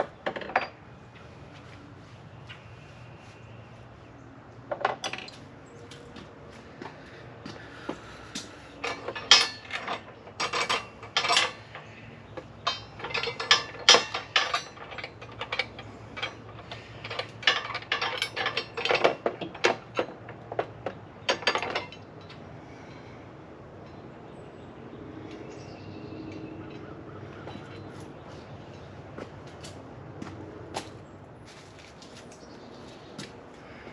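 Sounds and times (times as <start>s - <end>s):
metal clicks and clinks: 8.8s - 20.6s.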